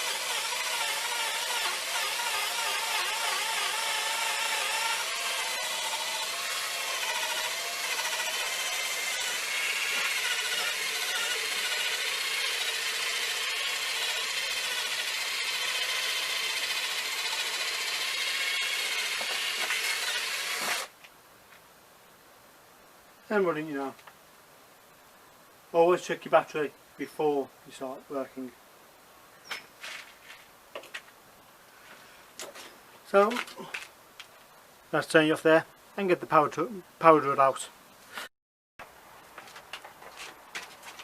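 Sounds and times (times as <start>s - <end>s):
drill motor whine: 0.0s - 20.9s.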